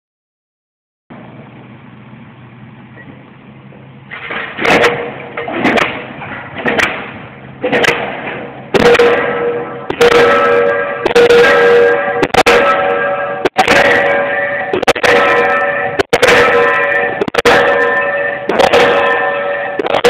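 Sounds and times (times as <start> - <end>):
low machine hum: 1.1 - 20.0
pile hammer bangs: 4.1 - 20.0.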